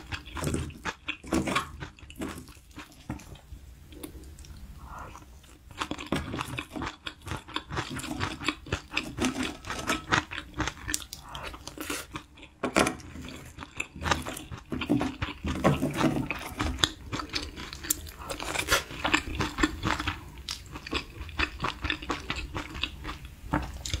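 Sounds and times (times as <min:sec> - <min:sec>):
wet chewing and slurping: 0:00.0 - 0:24.0.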